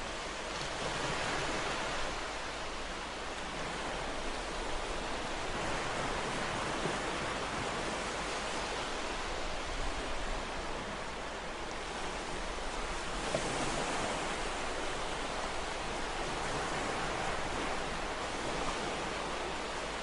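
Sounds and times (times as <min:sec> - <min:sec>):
ocean surf washing on shore: 0:00.0 - 0:20.0.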